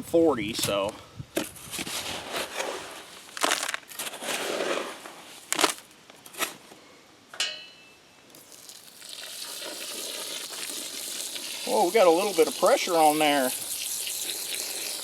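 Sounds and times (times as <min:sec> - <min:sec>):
metal tool scraping concrete: 0:01.6 - 0:05.3
metallic clank: 0:07.4 - 0:08.0.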